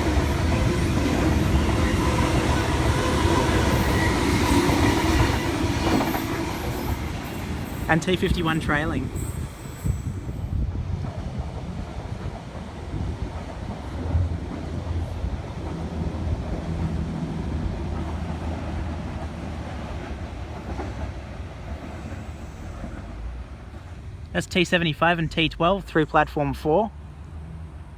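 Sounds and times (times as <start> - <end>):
wind buffeting microphone: 0.0 - 24.2
electric train passing: 0.0 - 27.9.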